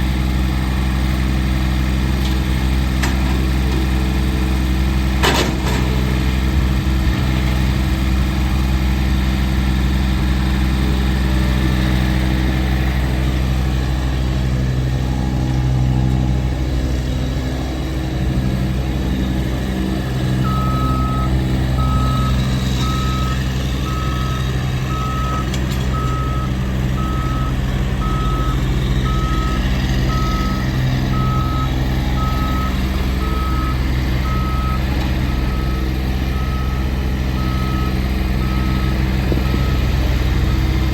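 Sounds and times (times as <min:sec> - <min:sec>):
tractor diesel engine running: 0:00.0 - 0:40.9
backup alarm beeping: 0:20.4 - 0:34.8.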